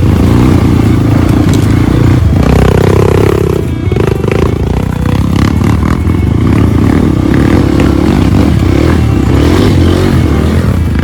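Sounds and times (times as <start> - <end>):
knocks and rattles from motorcycle: 0.0 - 8.5
motorcycle engine revving: 0.0 - 11.0.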